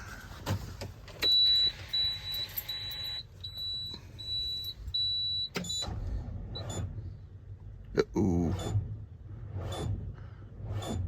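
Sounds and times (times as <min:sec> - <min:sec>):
vehicle warning beeps: 0:01.2 - 0:06.9.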